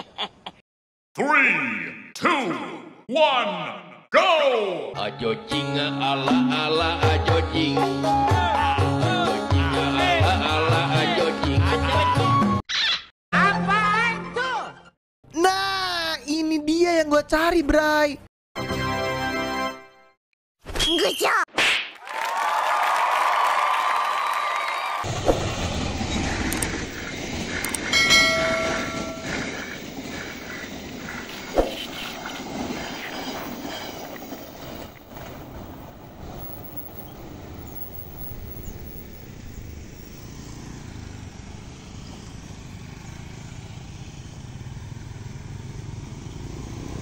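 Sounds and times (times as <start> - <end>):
train wheels rumbling on rail: 25.1 - 39.3.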